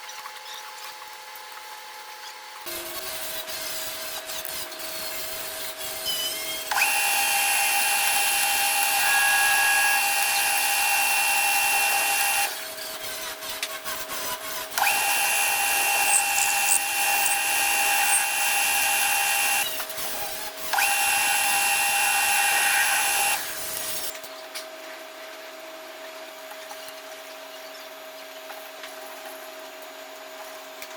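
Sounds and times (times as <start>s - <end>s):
lathe cutting with high whine: 2.7s - 13.4s, 14.0s - 19.7s, 20.7s - 24.1s
lathe humming: 6.7s - 12.6s.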